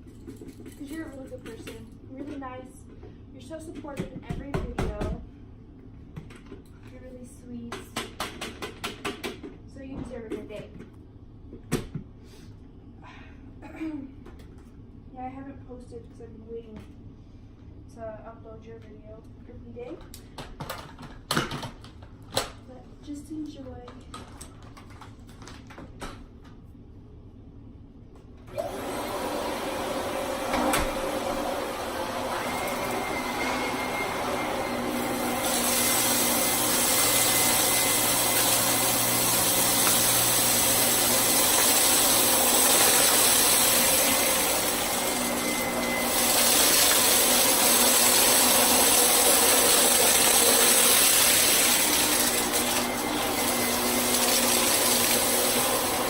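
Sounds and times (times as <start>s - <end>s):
vacuum cleaner running: 28.5s - 56.0s.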